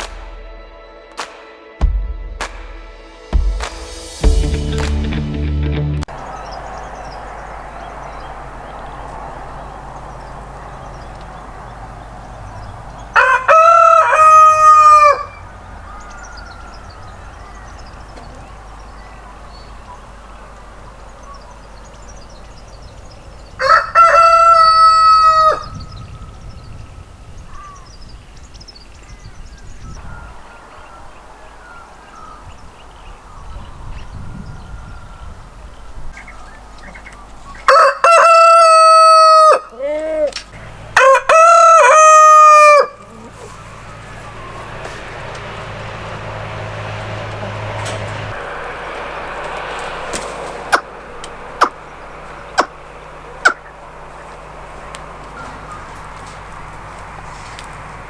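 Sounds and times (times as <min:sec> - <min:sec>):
rooster crowing: 0:06.1 - 0:26.4, 0:36.5 - 0:56.8
small birds chirping: 0:06.1 - 0:37.7, 0:43.0 - 0:58.0
steady background noise: 0:39.6 - 0:58.0.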